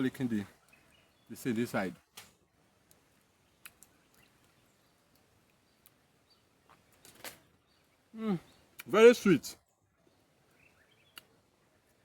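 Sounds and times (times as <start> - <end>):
faint outdoor hiss: 0.0 - 12.0
faint clicks: 2.1 - 6.0, 11.1 - 11.3.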